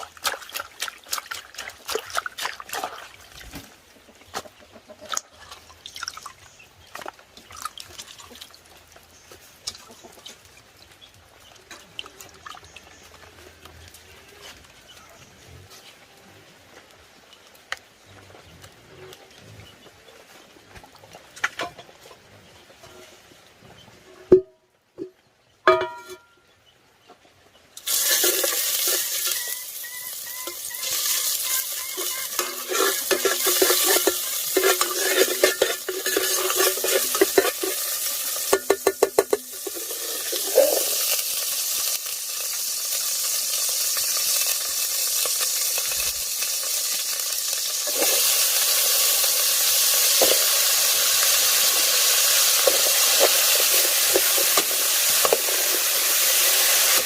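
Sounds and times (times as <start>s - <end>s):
food sizzling in hot oil: 27.8s - 57.0s
utensil scraping a pan: 27.9s - 41.5s, 47.8s - 49.1s, 50.0s - 57.0s.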